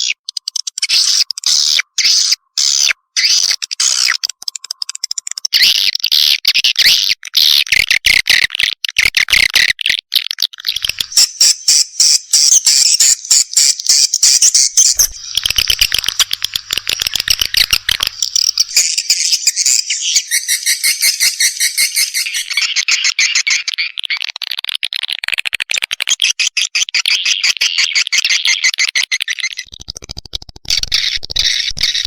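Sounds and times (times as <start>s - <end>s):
swiftlet chicks calling: 0.0s - 7.8s, 10.6s - 24.6s, 26.0s - 32.0s
swiftlets twittering: 10.7s - 22.5s.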